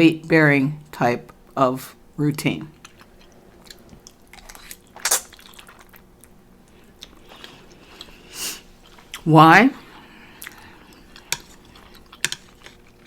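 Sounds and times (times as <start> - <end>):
person chewing noodles: 2.8 - 9.2, 9.8 - 13.0.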